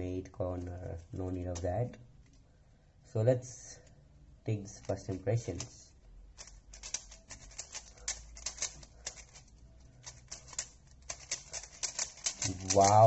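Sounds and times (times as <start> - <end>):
plastic puzzle cube clicks: 6.4 - 13.0.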